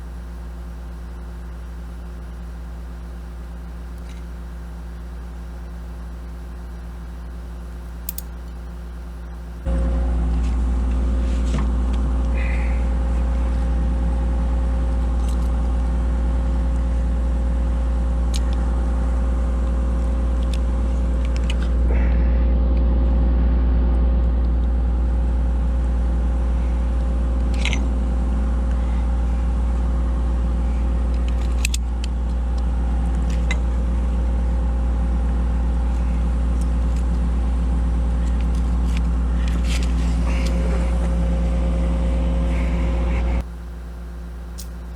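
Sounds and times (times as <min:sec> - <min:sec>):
sharp metallic clicks: 0:00.0 - 0:09.7, 0:43.6 - 0:44.9
excavator diesel engine running: 0:00.0 - 0:11.2, 0:32.1 - 0:44.9.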